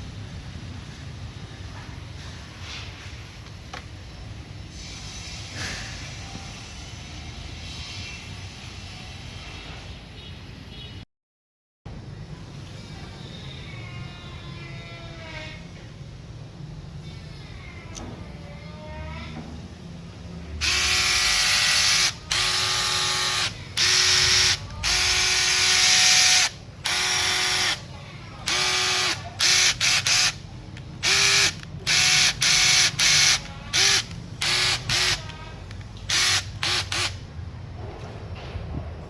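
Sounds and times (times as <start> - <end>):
impact wrench motor whine: 20.6 - 27.8, 28.4 - 30.4, 31.0 - 35.3, 36.1 - 37.2.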